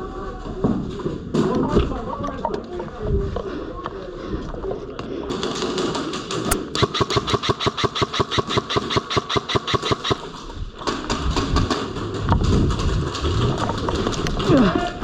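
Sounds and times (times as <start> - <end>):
airsoft gun full-auto burst: 6.5 - 10.3.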